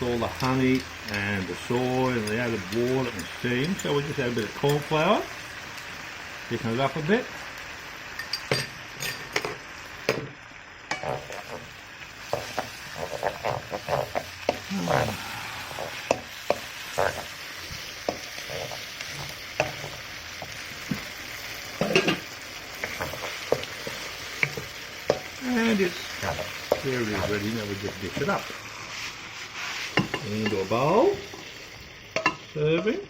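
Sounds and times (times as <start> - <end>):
food sizzling in a pan: 0.0 - 33.0
utensil scraping against a pan: 10.9 - 21.0, 21.8 - 31.3.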